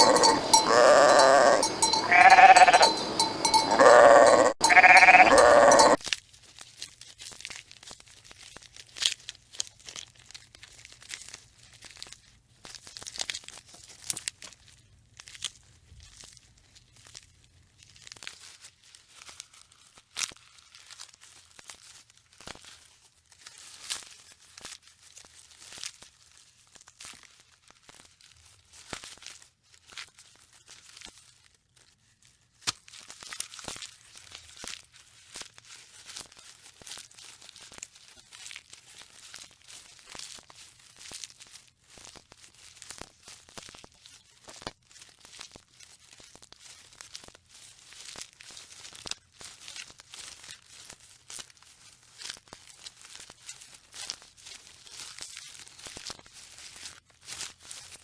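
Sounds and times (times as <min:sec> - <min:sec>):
animal bleating: 0:00.0 - 0:06.0
faint crunching and crackling: 0:00.0 - 0:58.0.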